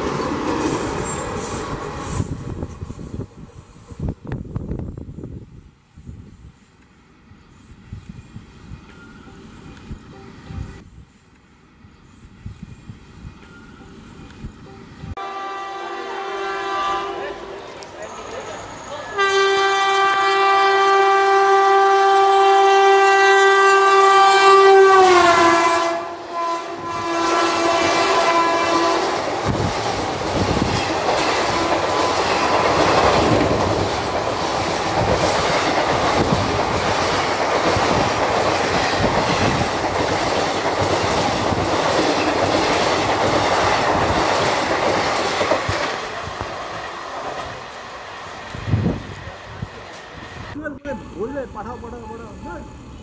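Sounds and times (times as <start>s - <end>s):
locomotive horn blast: 15.2s - 17.6s, 19.0s - 29.3s, 31.5s - 32.2s.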